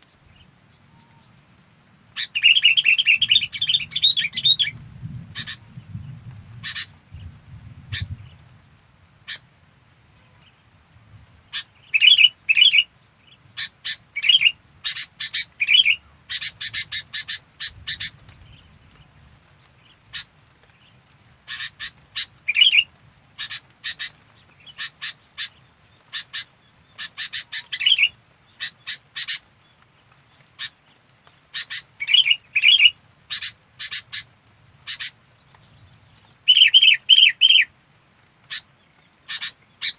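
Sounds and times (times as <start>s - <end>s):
bulbul chirpy calls: 2.1s - 5.7s, 6.6s - 7.3s, 9.2s - 9.5s, 11.4s - 18.7s, 19.8s - 29.5s, 30.5s - 35.4s, 36.3s - 37.8s, 38.4s - 39.9s.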